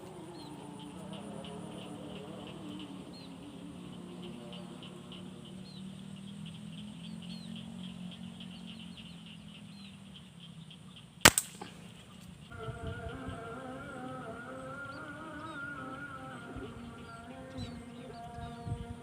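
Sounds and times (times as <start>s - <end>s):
small birds chirping: 0.0s - 19.0s
air rifle firing crack: 11.2s - 12.1s.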